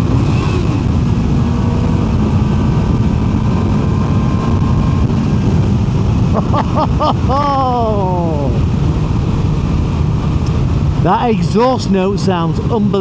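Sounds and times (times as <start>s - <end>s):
motorcycle engine running under load: 0.0s - 6.4s
heavy wind rush: 0.0s - 13.0s.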